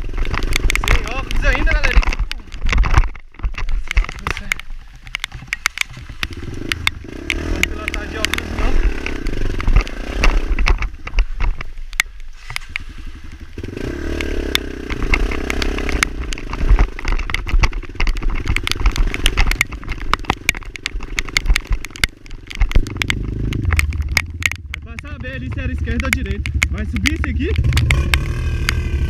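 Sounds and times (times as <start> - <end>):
bike knocking over stones: 0.0 - 29.0
motorbike engine revving: 6.1 - 11.0, 12.9 - 29.0.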